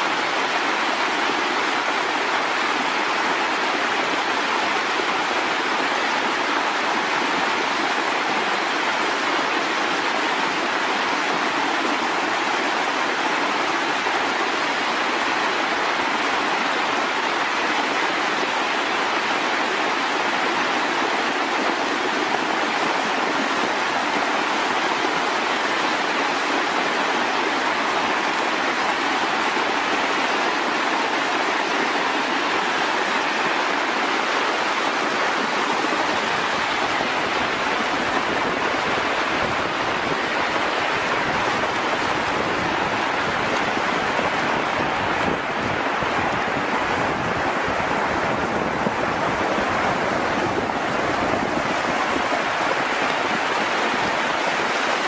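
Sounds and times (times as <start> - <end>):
floodwater rushing: 0.0 - 55.0.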